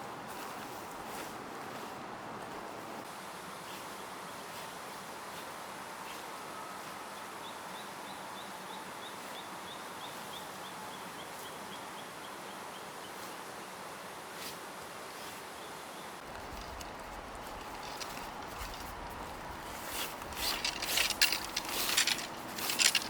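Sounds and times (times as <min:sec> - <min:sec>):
wind rumble on microphone: 0:16.2 - 0:23.0.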